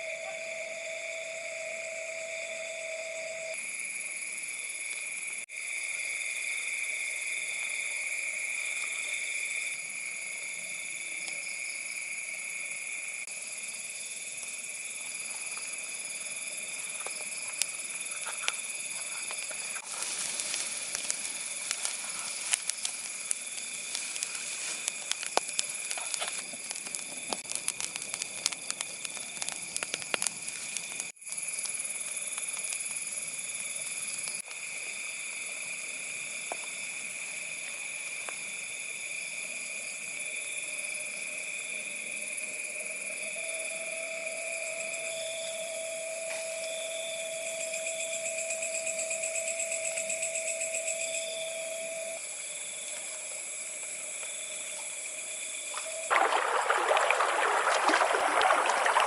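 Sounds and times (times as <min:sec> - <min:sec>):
night insects chirring: 0:00.0 - 0:59.0
wood fire crackling: 0:19.0 - 0:31.8, 0:56.1 - 0:59.0.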